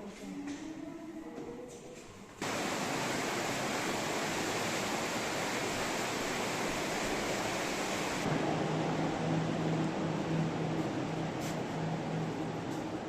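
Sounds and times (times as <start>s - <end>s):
flowing water rushing: 2.4s - 8.3s.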